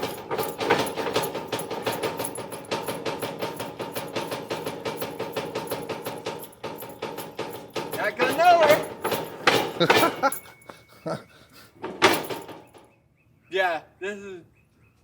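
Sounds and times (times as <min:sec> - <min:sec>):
rapid irregular knocking and rattling: 0:00.0 - 0:10.4, 0:11.8 - 0:13.0.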